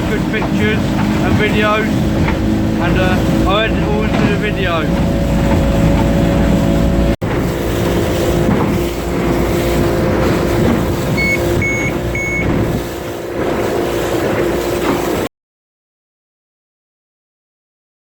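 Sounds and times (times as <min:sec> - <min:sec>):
engine running: 0:00.0 - 0:15.3
short high electronic beeps: 0:11.2 - 0:12.5.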